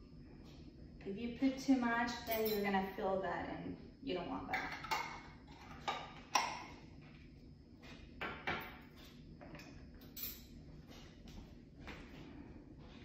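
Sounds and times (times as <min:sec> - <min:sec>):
kitchen utensils clinking: 0:04.5 - 0:06.6.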